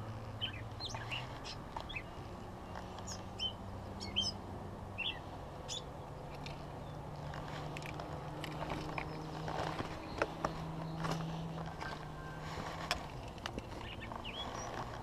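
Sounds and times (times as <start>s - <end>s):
small bird chirping: 0.4s - 4.4s, 5.0s - 7.1s, 13.6s - 14.9s.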